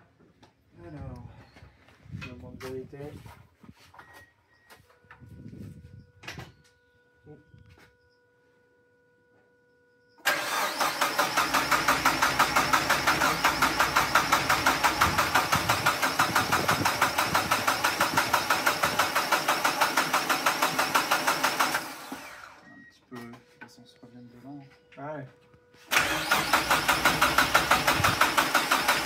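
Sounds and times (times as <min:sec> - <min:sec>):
car engine cranking by starter: 0:10.2 - 0:22.6, 0:25.9 - 0:29.0.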